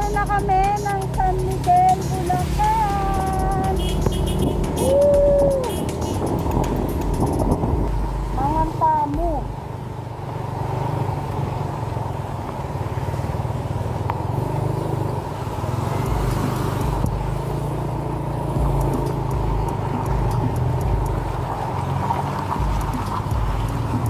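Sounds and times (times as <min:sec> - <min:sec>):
motorcycle engine drone: 0:00.0 - 0:24.0
road and wind noise: 0:00.0 - 0:24.0
deep low noise: 0:02.4 - 0:09.7, 0:16.0 - 0:17.7, 0:18.5 - 0:21.6, 0:22.6 - 0:24.0.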